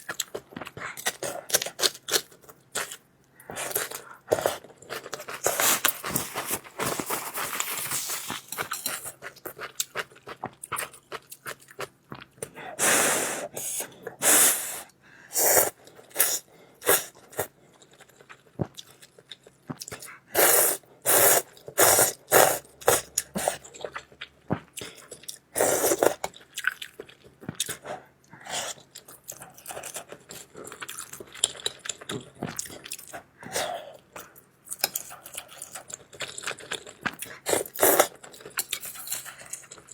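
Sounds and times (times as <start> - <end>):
chewing and mouth sounds: 0.0 - 12.6, 15.6 - 20.5, 21.4 - 39.9
noodle slurping: 15.4 - 17.5.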